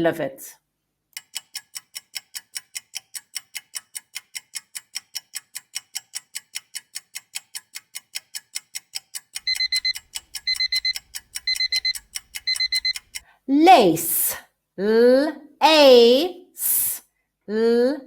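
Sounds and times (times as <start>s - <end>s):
clock ticking fast: 1.2s - 13.2s
alarm clock beeping: 9.4s - 13.2s.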